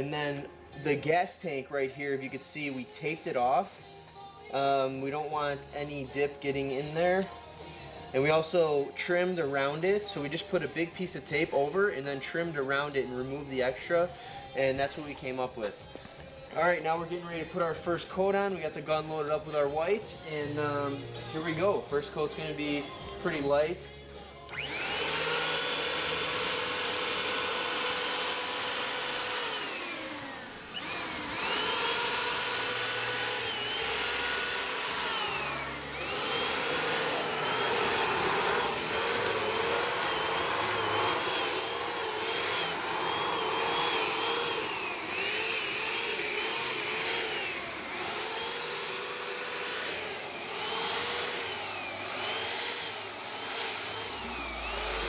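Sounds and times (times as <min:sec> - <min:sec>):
spray gun hiss and motor whine: 0:26.7 - 0:46.4.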